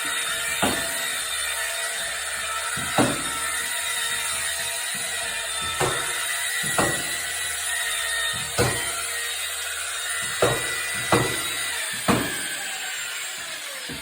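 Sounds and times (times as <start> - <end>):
sharp knocks: 0.6 - 1.0, 2.7 - 3.4, 4.9 - 7.2, 8.4 - 9.0, 10.2 - 12.5.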